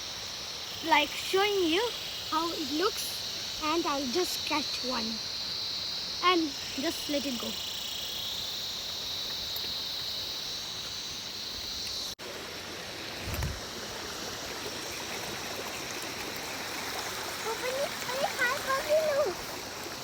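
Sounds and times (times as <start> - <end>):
river water rushing: 12.2 - 20.0
short low bump: 13.2 - 13.6.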